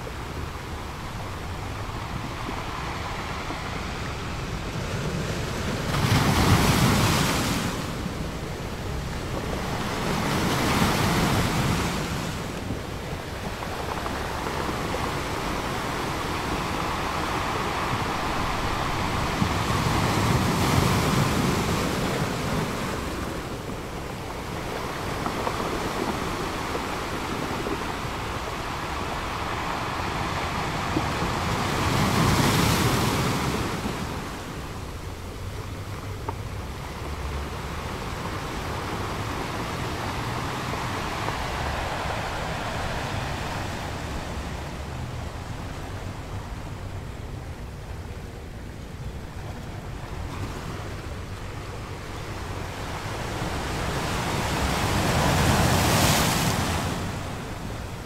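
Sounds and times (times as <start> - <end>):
waves breaking over boulders: 0.1 - 58.0.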